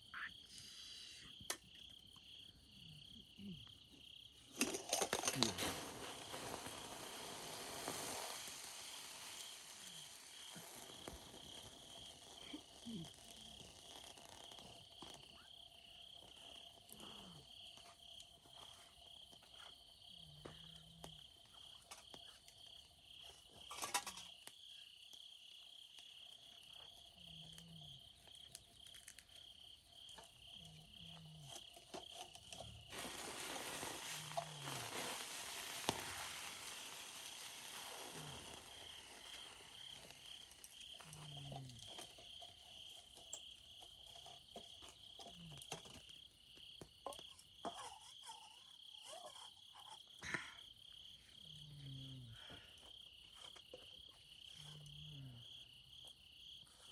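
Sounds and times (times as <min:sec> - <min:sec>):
insects chirping: 0:00.0 - 0:56.9
campfire crackling: 0:04.2 - 0:47.6
soft hiss: 0:05.2 - 0:15.6, 0:32.9 - 0:42.2.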